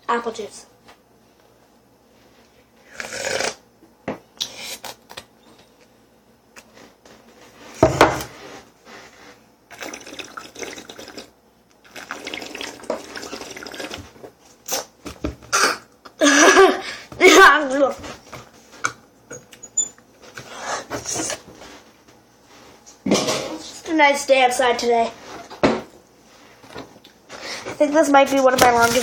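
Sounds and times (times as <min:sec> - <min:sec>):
juice sloshing in cup: 0:09.7 - 0:14.3.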